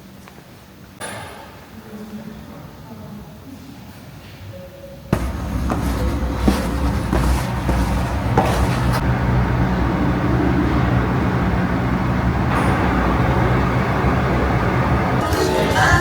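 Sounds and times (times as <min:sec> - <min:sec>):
motor vehicle running: 0:05.1 - 0:15.2.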